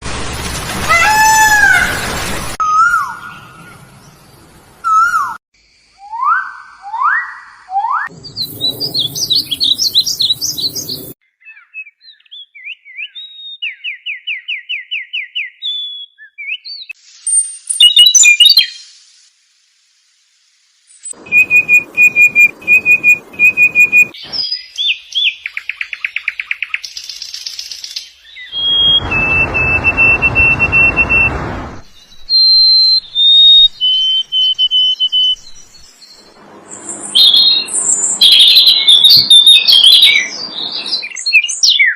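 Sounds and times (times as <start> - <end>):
bird calls and songs: 8.1 - 19.0, 20.9 - 31.0, 31.8 - 41.9.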